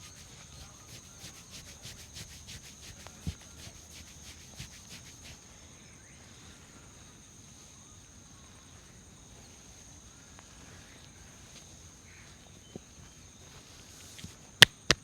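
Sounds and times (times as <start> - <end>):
hands rubbing hair and scalp: 0.0 - 5.4.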